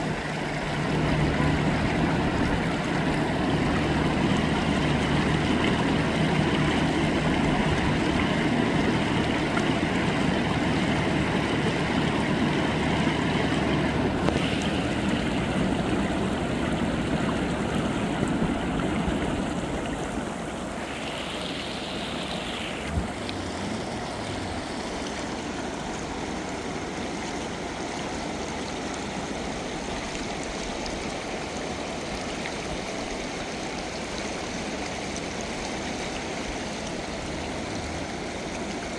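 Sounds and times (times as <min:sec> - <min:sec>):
low motor hum: 0:00.0 - 0:20.6, 0:22.5 - 0:27.4, 0:35.4 - 0:38.9
rushing floodwater: 0:00.0 - 0:38.9.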